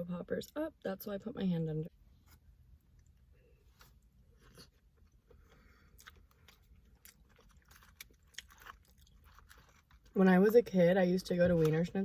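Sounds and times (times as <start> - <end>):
person chewing crunchy food: 2.9 - 10.2.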